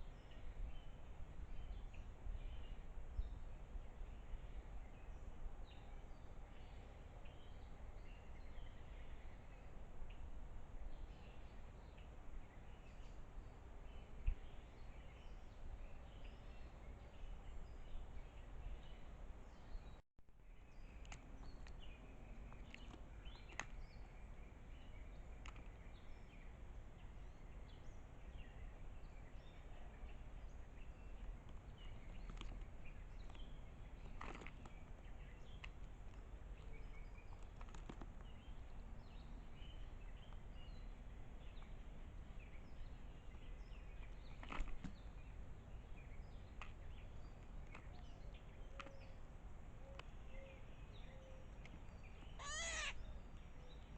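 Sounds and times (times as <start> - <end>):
outdoor background hiss and hum: 0.0 - 53.9
distant bird chirps: 49.8 - 53.9.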